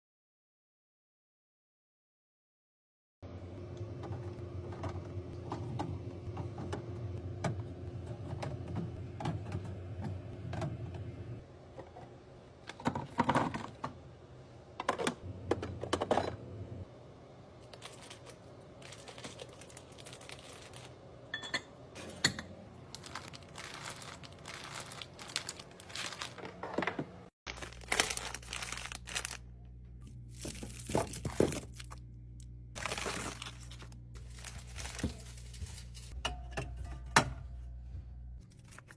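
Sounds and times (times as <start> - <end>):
packaging crinkling and tearing: 17.6 - 21.0, 22.9 - 26.6, 27.5 - 29.5, 30.3 - 32.0, 32.8 - 36.2, 38.4 - 38.9
steady low hum: 27.5 - 38.6.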